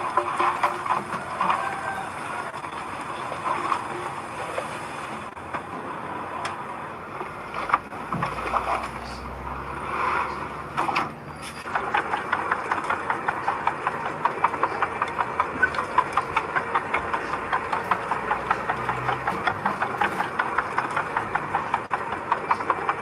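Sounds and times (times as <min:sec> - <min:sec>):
construction machine engine running: 0:00.0 - 0:23.0
rhythmic clatter: 0:10.7 - 0:23.0.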